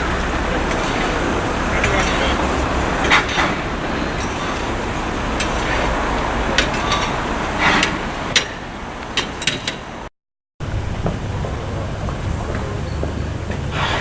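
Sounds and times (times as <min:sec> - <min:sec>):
steady rumble: 0:00.0 - 0:14.0
sharp metallic clinks and knocks: 0:03.0 - 0:08.6.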